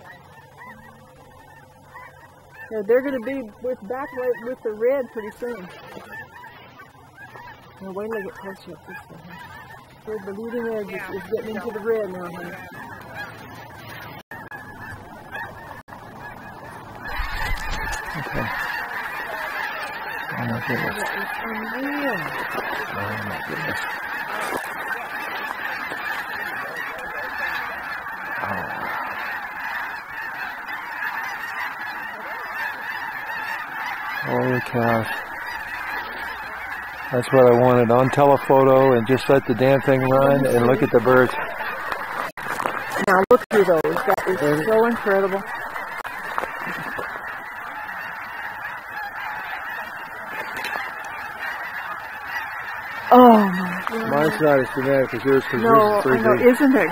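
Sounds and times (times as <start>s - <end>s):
flock of geese honking: 0.0s - 56.9s.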